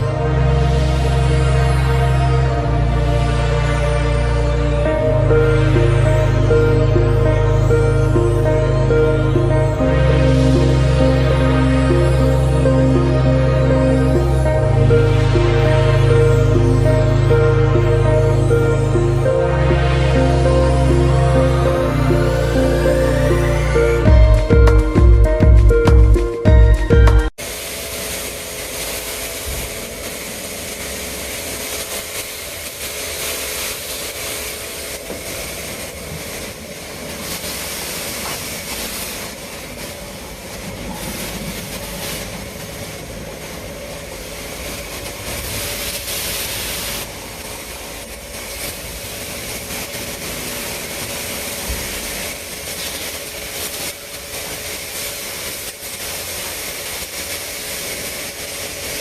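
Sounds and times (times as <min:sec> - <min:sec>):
pressure washer spray hissing: 0:00.0 - 0:25.8, 0:27.4 - 0:59.0
pump motor hum: 0:27.4 - 0:59.0.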